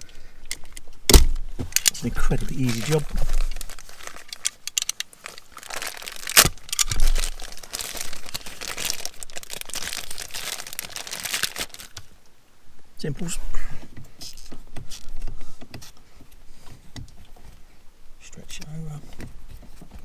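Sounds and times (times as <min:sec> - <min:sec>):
rubber pad crinkling and scraping: 0:01.5 - 0:12.1.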